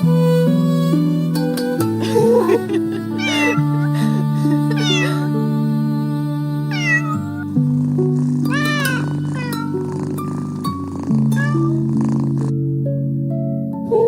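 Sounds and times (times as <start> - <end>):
soft background music: 0.0 - 14.0
kitten meowing: 3.1 - 3.9, 4.7 - 5.4, 6.7 - 7.5, 8.4 - 11.9.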